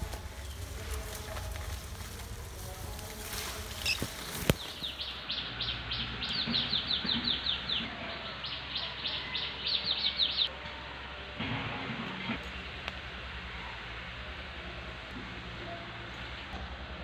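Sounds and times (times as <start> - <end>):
brief rustle: 0.0 - 5.0.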